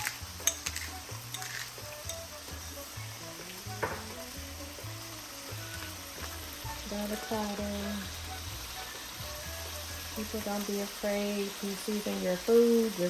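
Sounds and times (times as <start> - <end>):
stirring clicks: 0.0 - 2.2
chicken sizzling in a pan: 0.0 - 13.0
soft background music: 0.0 - 13.0.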